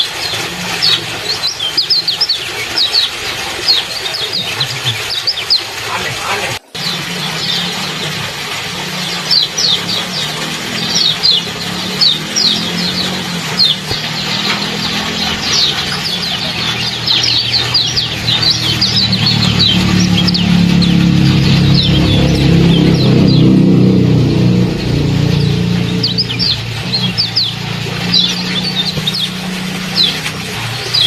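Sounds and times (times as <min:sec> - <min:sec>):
songbird chirps: 0:00.0 - 0:08.2, 0:08.8 - 0:31.0
low steady hum: 0:06.8 - 0:31.0.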